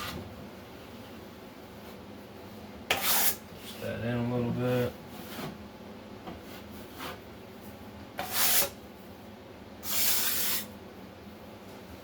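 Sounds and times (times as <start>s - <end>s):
trowel scraping across wall: 2.9s - 3.4s, 8.2s - 8.8s, 9.8s - 10.7s.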